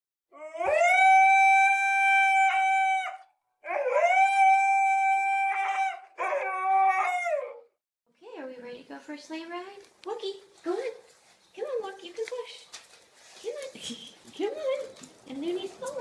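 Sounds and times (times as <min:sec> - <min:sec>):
dog howling: 0:00.3 - 0:07.7.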